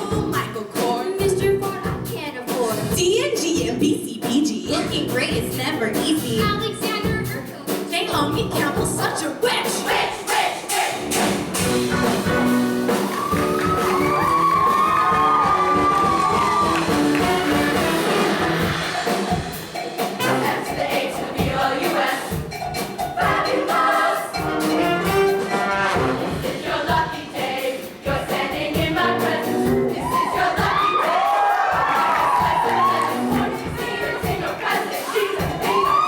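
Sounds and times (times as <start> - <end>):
live backing band: 0.0 - 36.0
choir singing: 9.5 - 36.0.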